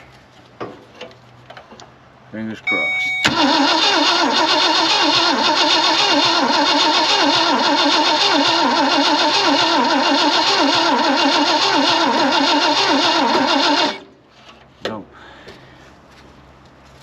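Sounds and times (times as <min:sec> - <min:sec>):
engine starter cranking: 0:03.2 - 0:14.1.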